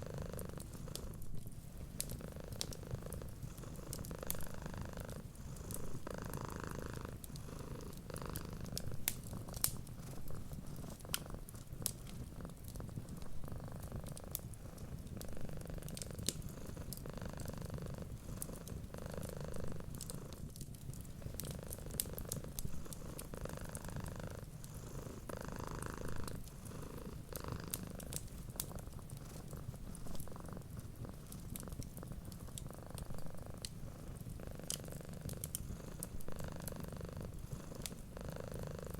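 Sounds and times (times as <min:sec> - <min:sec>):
cat purring: 0:00.0 - 0:38.9
wood fire crackling: 0:00.7 - 0:17.1, 0:17.7 - 0:38.2.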